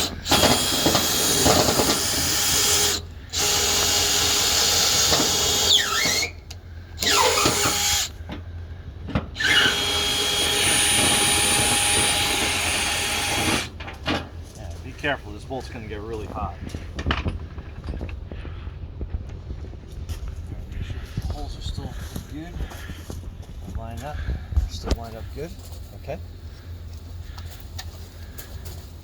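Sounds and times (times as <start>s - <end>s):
power drill boring holes: 0.0s - 8.2s, 9.4s - 13.7s.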